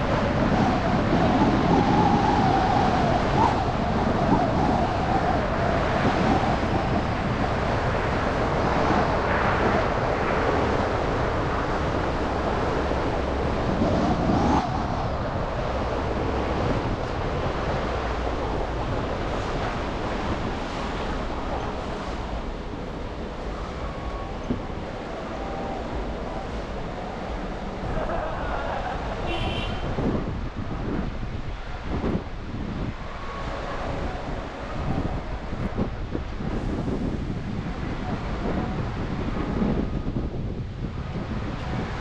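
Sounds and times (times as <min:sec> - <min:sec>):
wavering vehicle tone: 0:21.2 - 0:30.2.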